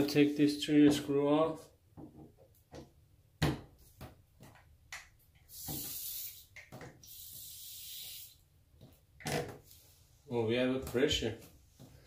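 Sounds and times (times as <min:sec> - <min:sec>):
water hissing from valve: 0:05.4 - 0:08.5.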